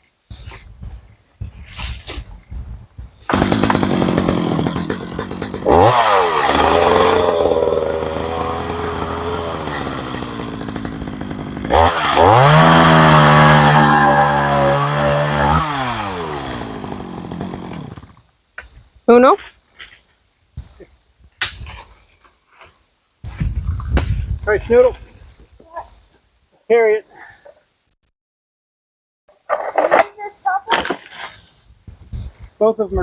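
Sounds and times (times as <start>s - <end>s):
small engine revving: 3.3s - 18.1s.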